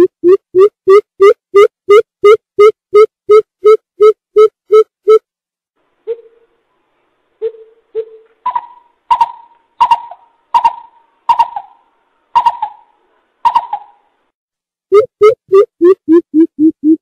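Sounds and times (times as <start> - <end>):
bird hooting: 6.1 - 6.5, 7.4 - 14.0.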